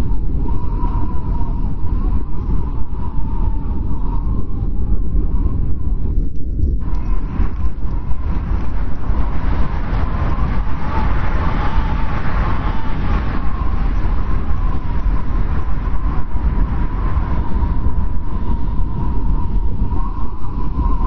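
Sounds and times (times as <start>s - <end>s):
strong wind with deep rumble: 0.0s - 21.0s
thin steady wind whistle: 0.0s - 21.0s.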